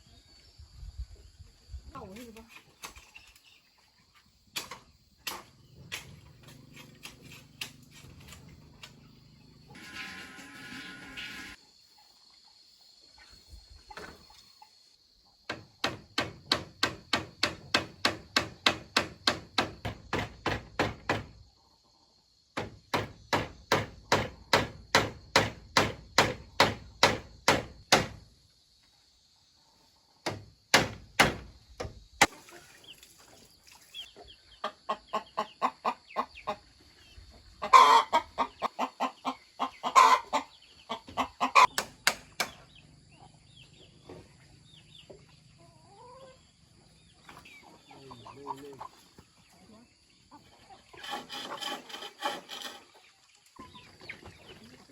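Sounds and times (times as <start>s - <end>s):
chickens clucking and squawking: 34.0s - 41.8s, 42.5s - 54.9s.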